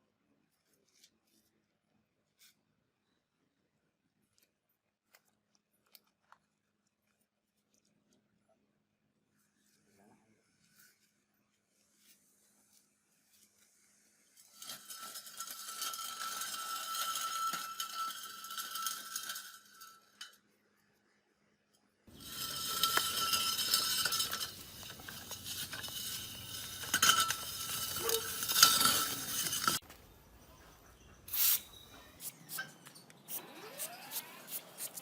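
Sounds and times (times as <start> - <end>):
metal scraping and clinking: 14.2 - 20.5, 22.1 - 35.0.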